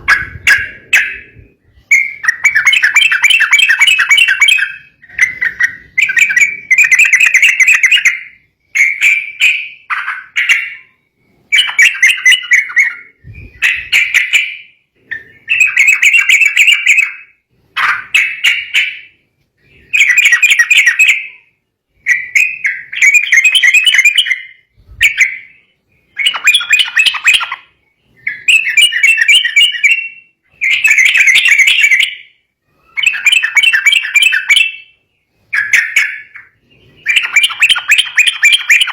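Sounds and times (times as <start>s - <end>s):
bulbul singing chattering phrases: 35.5s - 38.9s.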